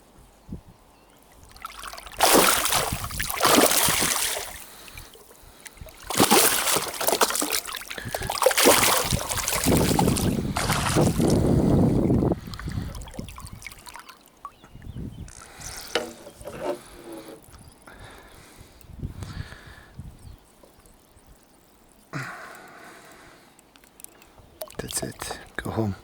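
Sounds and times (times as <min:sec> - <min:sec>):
water splashing around kayak: 0:01.2 - 0:14.7, 0:23.7 - 0:25.6.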